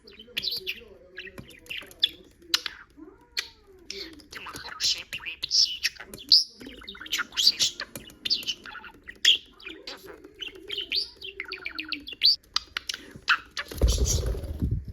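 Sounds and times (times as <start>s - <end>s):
budgerigar chirping and chattering: 0.0s - 14.4s.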